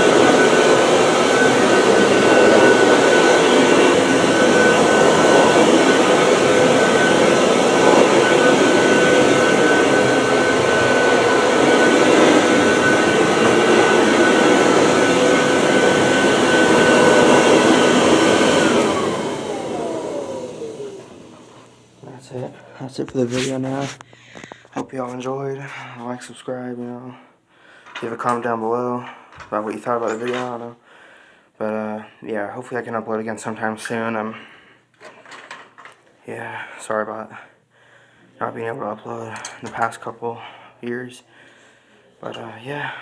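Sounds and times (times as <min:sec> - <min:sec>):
vacuum cleaner motor whine: 0:00.0 - 0:24.6.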